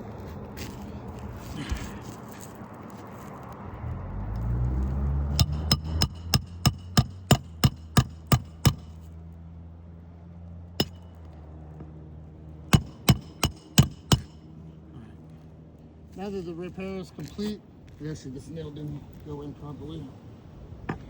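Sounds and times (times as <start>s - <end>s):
hammer blows on nail: 5.3s - 8.9s.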